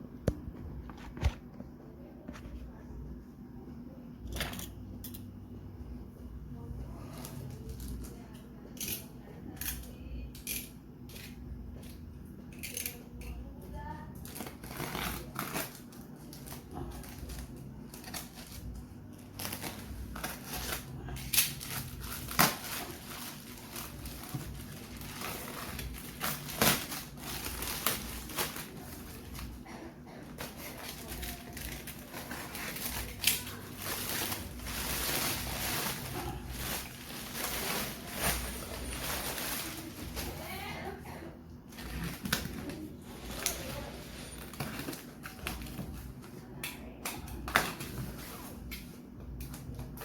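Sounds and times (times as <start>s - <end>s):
packaging crinkling: 14.2s - 29.6s, 30.4s - 40.6s.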